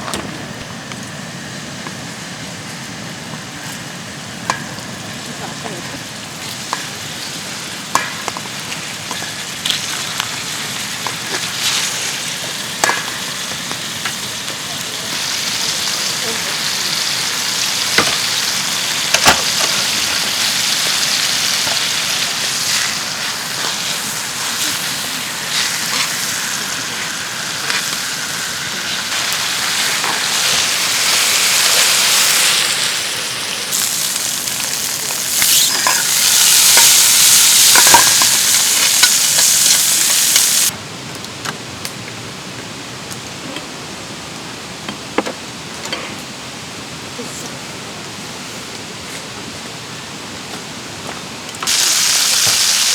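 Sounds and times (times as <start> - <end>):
food sizzling in a hot pan: 6.0 - 40.7, 51.6 - 52.9.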